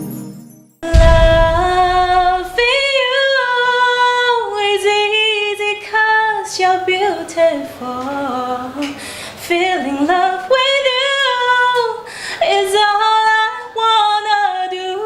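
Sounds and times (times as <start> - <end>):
woman singing without words: 0.8 - 15.0
low rumble: 0.9 - 2.7.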